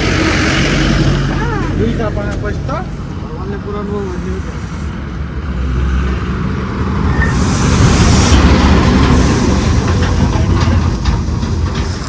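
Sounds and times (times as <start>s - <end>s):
truck engine drone: 0.0s - 12.0s
rushing hiss: 2.6s - 12.0s
rattling: 7.4s - 12.0s.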